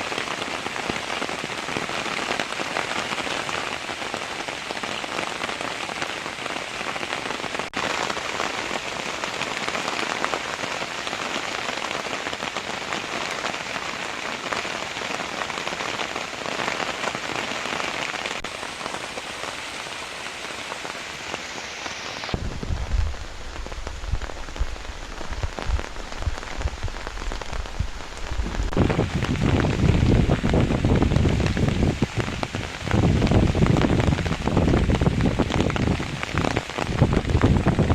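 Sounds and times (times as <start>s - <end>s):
heavy rain hiss: 0.0s - 37.9s
uneven low rumble: 22.4s - 34.5s.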